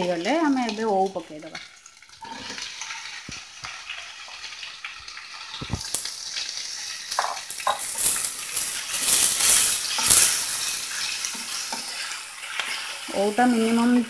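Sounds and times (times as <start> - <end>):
food sizzling in a pan: 0.0 - 14.0
spatula knocking and scraping: 7.2 - 12.0.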